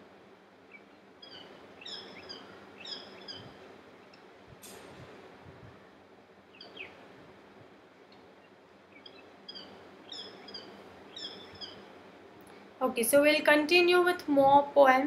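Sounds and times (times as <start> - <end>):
faint room noise: 0.0 - 15.0
birds chirping: 0.6 - 4.3, 6.5 - 7.0, 8.2 - 12.0.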